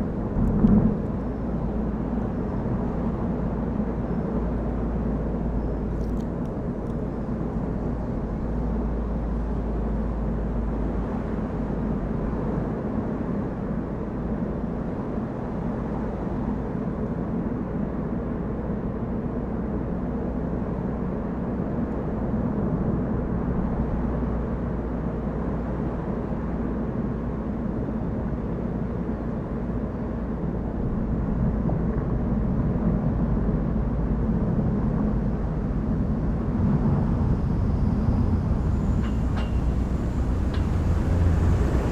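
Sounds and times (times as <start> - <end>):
car engine and tyre drone: 0.0 - 13.7, 30.9 - 41.9.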